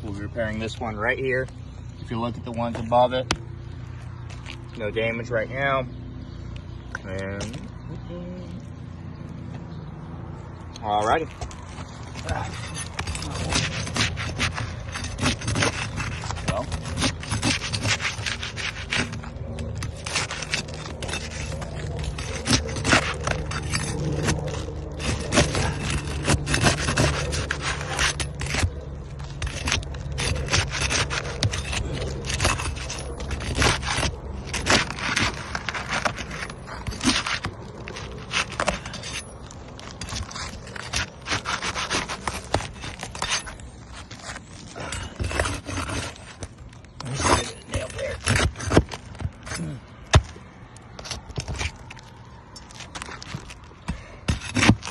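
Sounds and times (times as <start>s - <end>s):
scraping on roof shingles: 11.0s - 54.9s.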